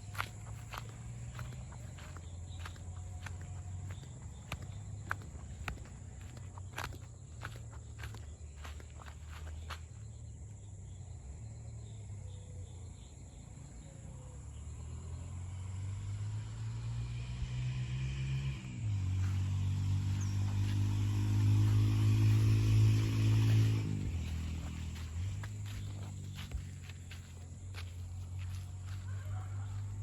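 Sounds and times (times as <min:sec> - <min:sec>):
footsteps: 0:00.0 - 0:09.8, 0:20.5 - 0:30.0
vehicle engine approaching: 0:00.0 - 0:30.0.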